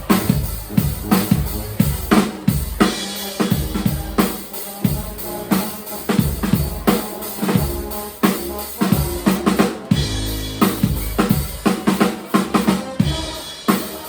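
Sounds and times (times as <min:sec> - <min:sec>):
low bass notes: 0:00.0 - 0:02.1, 0:09.9 - 0:11.4
drum kit groove: 0:00.0 - 0:14.0
live band music: 0:00.0 - 0:14.0.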